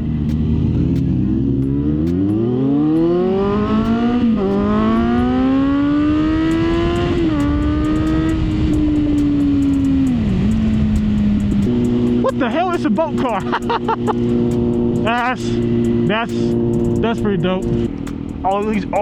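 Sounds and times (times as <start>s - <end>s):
motorcycle engine accelerating: 0.0s - 19.0s
wind noise: 3.4s - 12.2s.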